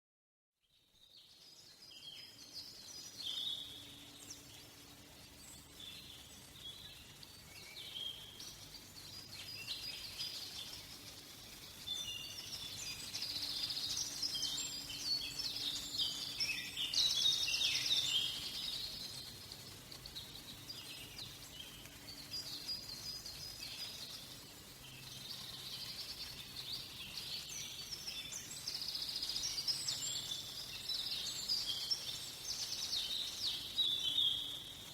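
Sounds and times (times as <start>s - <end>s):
songbirds chirping and trilling: 1.0s - 34.9s.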